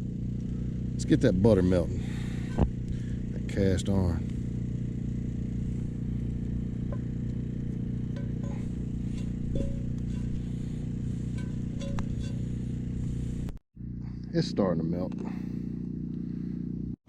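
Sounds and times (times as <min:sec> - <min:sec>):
low hum: 0:00.0 - 0:17.0
campfire crackles and pops: 0:04.2 - 0:09.0.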